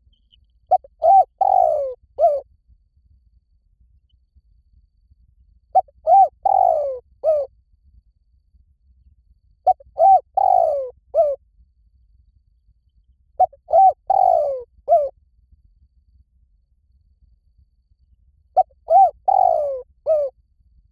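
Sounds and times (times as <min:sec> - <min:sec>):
dove cooing: 0:00.7 - 0:02.4, 0:05.8 - 0:07.5, 0:09.7 - 0:11.4, 0:13.4 - 0:15.1, 0:18.6 - 0:20.3.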